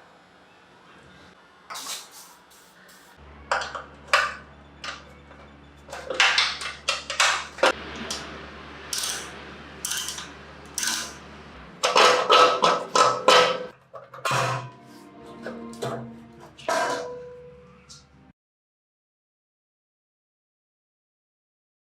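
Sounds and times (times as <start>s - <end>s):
steady low hum: 3.2s - 18.3s
metal tools clinking and scraping: 9.0s - 11.2s, 11.8s - 17.4s.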